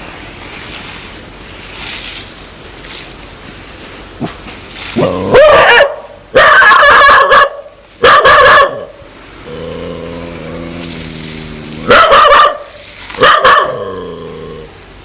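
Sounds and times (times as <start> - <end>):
dog barking: 5.0 - 9.0, 11.8 - 14.0
steady low drone: 9.3 - 15.0.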